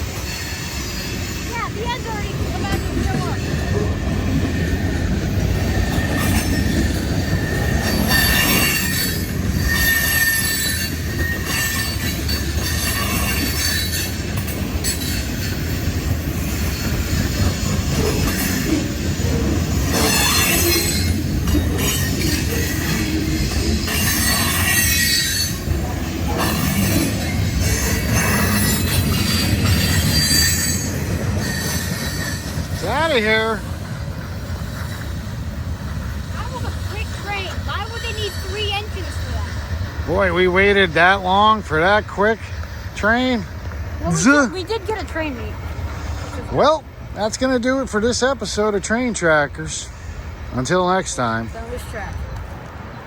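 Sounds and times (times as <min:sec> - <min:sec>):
train wheels rumbling on rail: 0:00.0 - 0:53.0
metallic wheel squeal: 0:02.7 - 0:35.3.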